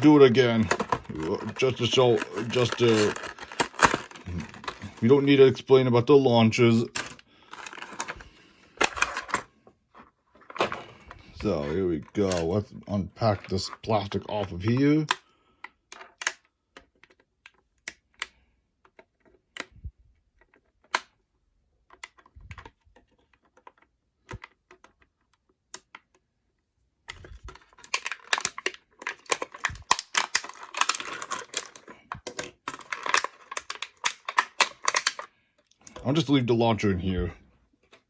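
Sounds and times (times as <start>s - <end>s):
plastic packaging clicks and taps: 0.0s - 5.1s, 21.9s - 26.2s, 27.1s - 36.0s
crinkling plastic: 0.0s - 9.5s, 10.3s - 15.3s, 27.1s - 36.3s.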